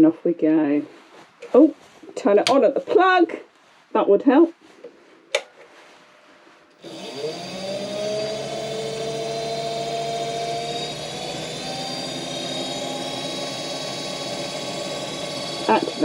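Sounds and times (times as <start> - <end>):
wood lathe motor whining: 6.7 - 16.0.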